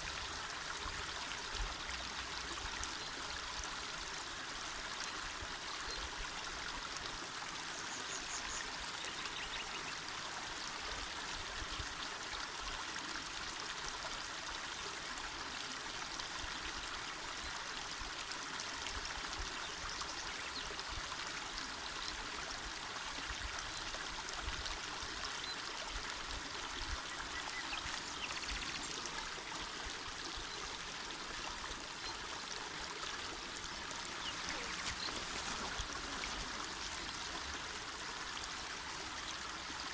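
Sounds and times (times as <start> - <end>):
river babbling over stones: 24.9 - 39.9.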